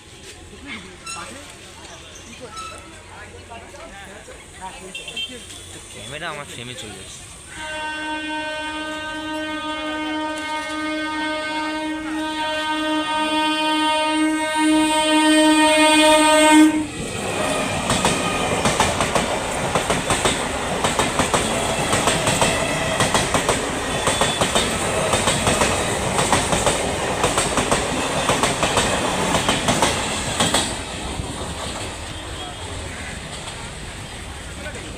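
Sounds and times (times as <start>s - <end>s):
train horn blast: 7.5s - 16.9s
train wheels clattering over rail joints: 17.3s - 32.2s.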